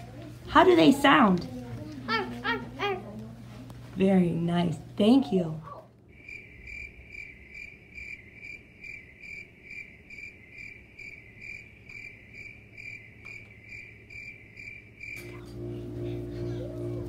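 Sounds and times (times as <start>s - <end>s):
insect chirping: 6.1s - 15.2s
music: 15.2s - 17.0s.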